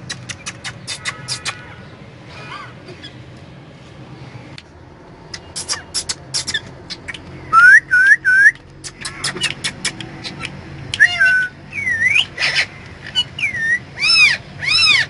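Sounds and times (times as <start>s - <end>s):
sharp clicks: 0.0s - 1.6s, 8.5s - 11.1s
parrot chirping: 5.3s - 15.0s.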